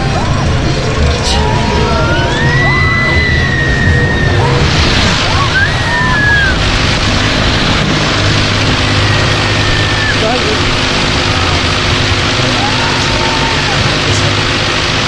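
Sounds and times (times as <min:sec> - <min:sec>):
wind rushing over microphone: 0:00.0 - 0:15.0
rider screaming: 0:01.3 - 0:06.8, 0:12.4 - 0:13.9.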